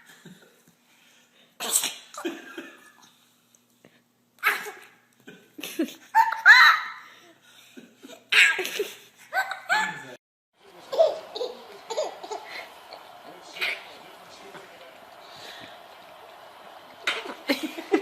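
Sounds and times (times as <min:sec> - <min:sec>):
person laughing: 0:10.9 - 0:12.8, 0:17.2 - 0:18.0.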